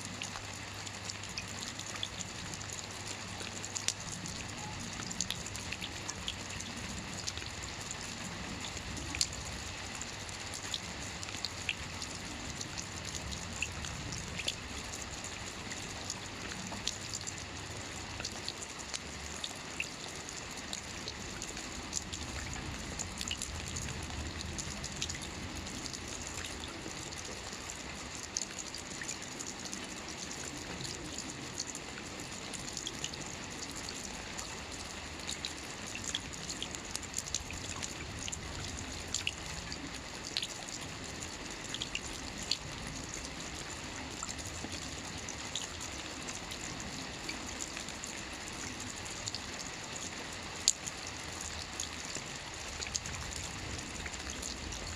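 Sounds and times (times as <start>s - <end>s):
light rain falling: 0.0s - 54.9s.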